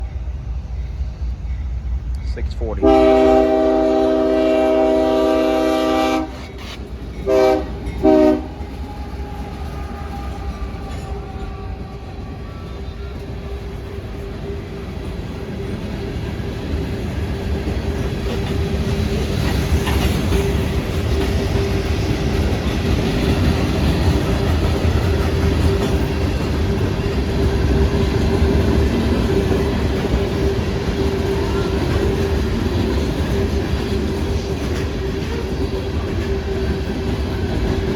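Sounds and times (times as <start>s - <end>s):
train wheels clacking on rails: 0.0s - 37.9s
locomotive horn: 2.8s - 12.4s.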